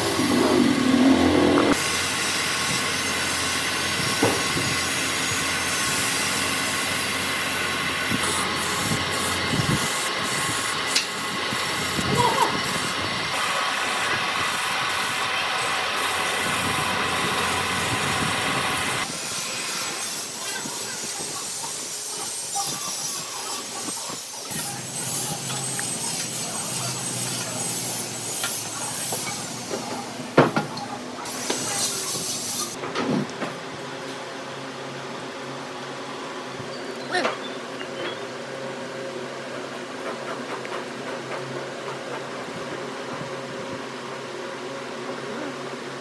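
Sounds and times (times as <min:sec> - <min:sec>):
power tool working wood: 0:00.0 - 0:20.5, 0:24.4 - 0:30.1.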